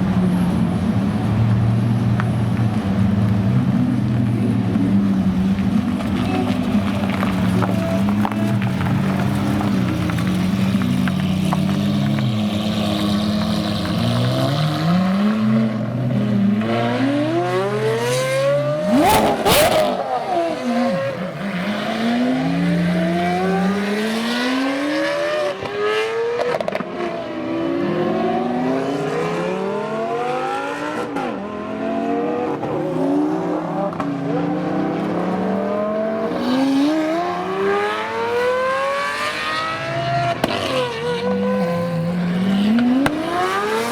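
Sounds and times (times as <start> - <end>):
sports car engines revving: 0.0 - 43.9
car passing close: 4.0 - 31.4
exhaust crackle: 5.1 - 15.0.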